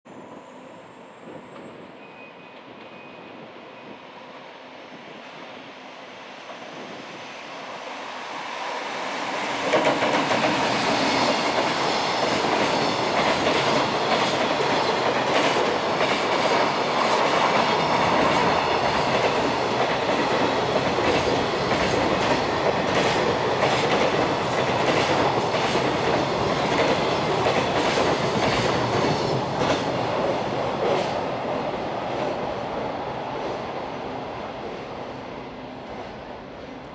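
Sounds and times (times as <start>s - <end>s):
electric locomotive passing: 0.1s - 36.9s
train wheels clicking over rail joints: 9.6s - 31.2s.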